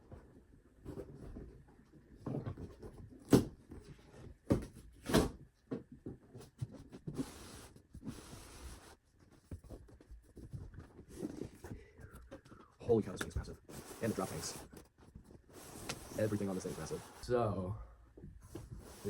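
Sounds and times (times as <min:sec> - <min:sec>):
foam rustling and scraping: 0:13.6 - 0:17.3.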